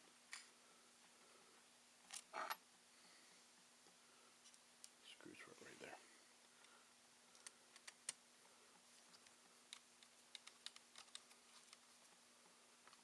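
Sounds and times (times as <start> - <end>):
faint steady hum: 0.0 - 13.0
laptop parts clicking and tapping: 7.4 - 8.2, 9.2 - 11.8.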